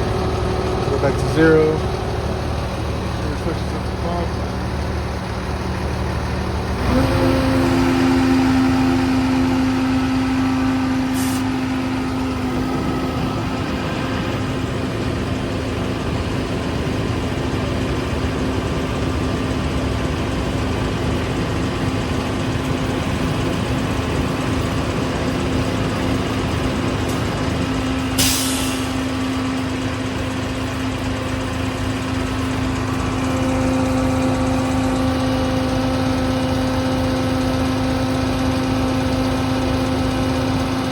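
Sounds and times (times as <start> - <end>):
fuel pump hum: 0.0 - 40.9
truck engine running: 0.0 - 40.9.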